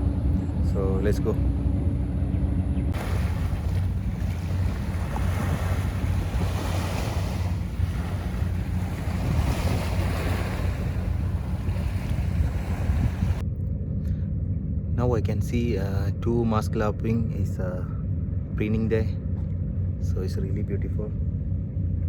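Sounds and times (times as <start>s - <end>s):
wind buffeting microphone: 0.0s - 13.4s
sea surf washing on shore: 3.0s - 13.4s.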